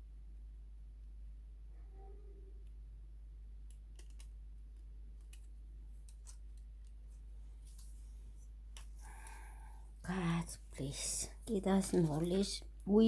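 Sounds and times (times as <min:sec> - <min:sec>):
steady low hum: 0:00.0 - 0:13.0
small plastic parts clicking: 0:03.6 - 0:04.4.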